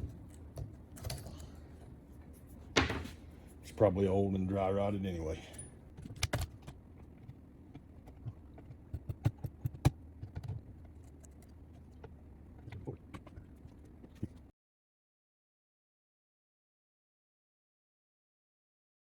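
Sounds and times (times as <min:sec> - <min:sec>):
hands handling machine parts: 0:00.0 - 0:03.6.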